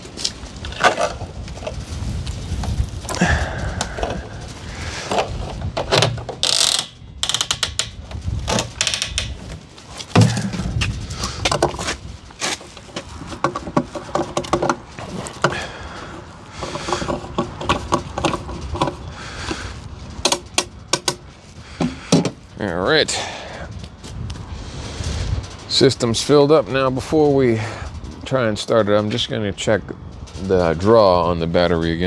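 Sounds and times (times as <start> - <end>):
mechanical clicks and rattles: 2.6 - 22.5
loud thump: 10.1 - 11.4.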